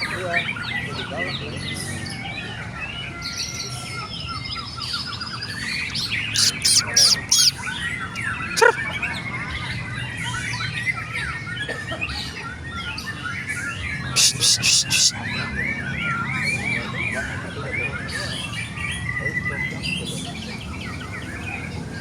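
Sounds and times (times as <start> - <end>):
other songbirds: 0.0 - 22.0
bird singing whistled phrases: 5.9 - 7.7, 14.1 - 15.3.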